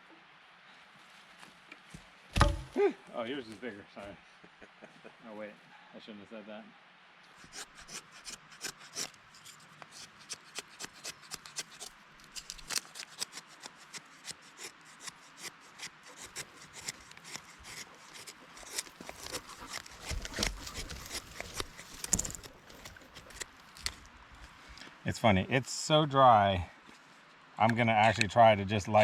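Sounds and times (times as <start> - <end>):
wood scraping and crackling: 10.8 - 13.7, 16.2 - 24.8.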